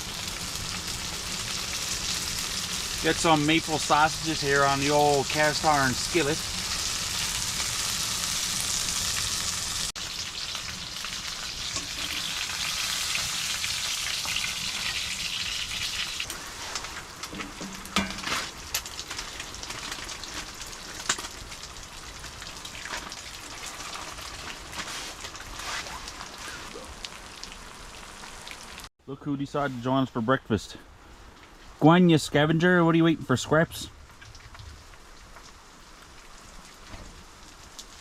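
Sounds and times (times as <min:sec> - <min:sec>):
sausages sizzling in skillet: 0:00.0 - 0:28.9.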